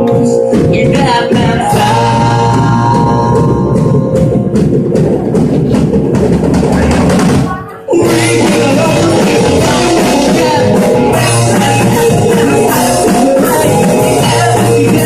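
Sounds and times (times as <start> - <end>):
drum kit: 0.0 - 15.0
electric guitar: 7.1 - 15.0.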